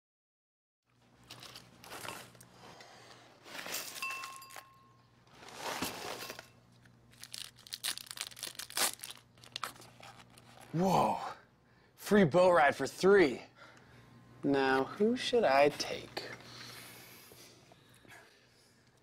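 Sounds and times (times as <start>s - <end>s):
crinkling and rustling: 0.9s - 10.8s.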